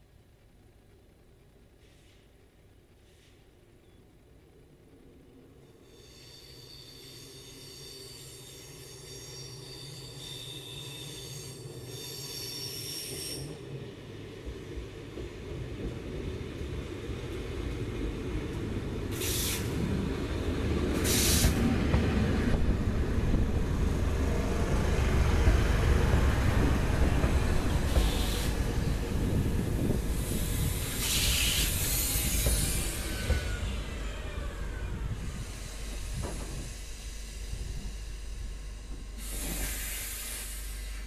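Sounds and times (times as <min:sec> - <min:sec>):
train wheel squeal: 0:05.6 - 0:13.7, 0:27.6 - 0:28.6, 0:30.2 - 0:41.0
train rumble: 0:10.2 - 0:41.0
hiss bursts: 0:19.1 - 0:19.8, 0:20.9 - 0:21.7, 0:27.9 - 0:28.6, 0:30.1 - 0:33.6, 0:35.3 - 0:41.0.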